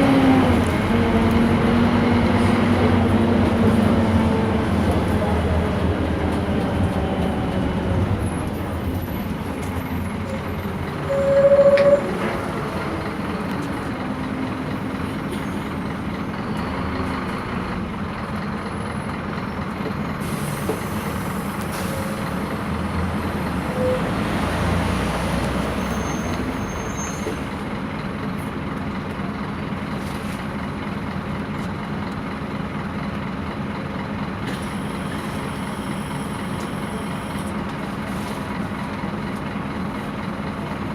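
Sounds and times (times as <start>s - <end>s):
bus diesel engine running: 0.0s - 40.9s
brief loud tone: 11.1s - 12.2s.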